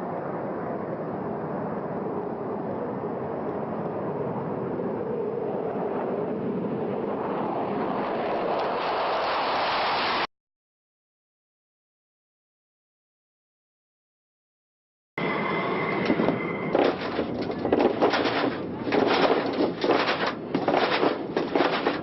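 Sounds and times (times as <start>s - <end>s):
jet engine rushing: 4.5s - 10.3s, 15.2s - 22.0s.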